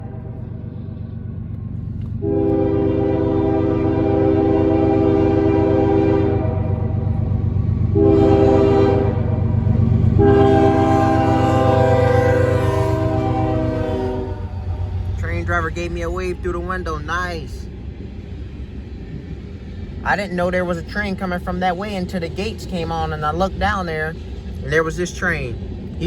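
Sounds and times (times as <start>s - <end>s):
train rumbling: 0.0s - 26.0s
locomotive air horn blasts: 2.2s - 6.9s, 7.9s - 9.4s, 10.2s - 14.8s.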